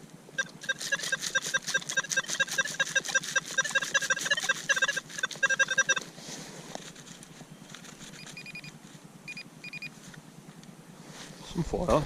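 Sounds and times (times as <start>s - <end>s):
rapid electronic beeping: 0.4s - 6.1s, 8.0s - 8.7s
short higher beeps: 0.4s - 6.1s.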